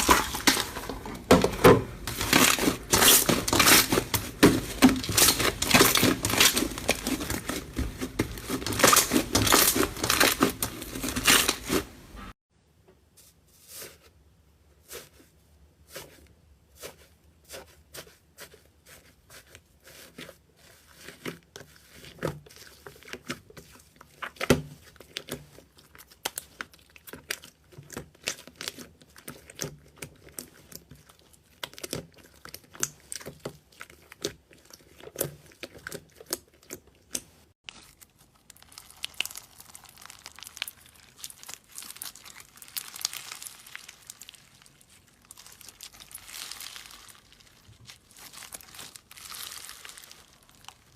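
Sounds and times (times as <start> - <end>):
crinkling crackling: 0.0 - 12.4, 37.1 - 50.9.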